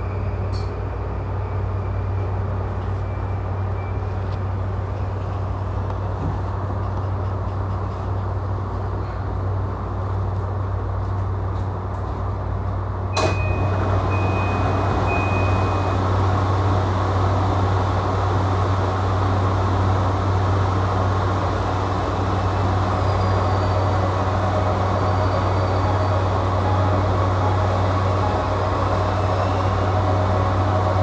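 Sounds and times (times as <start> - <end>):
train low hum: 0.0 - 31.0
door chime beeps: 13.2 - 16.0.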